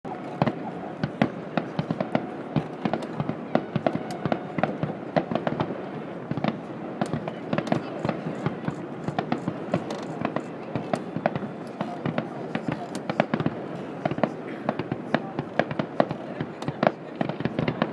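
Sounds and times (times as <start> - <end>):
fireworks bangs and cracks: 0.1 - 17.9
fireworks crackling rumble: 0.1 - 17.9.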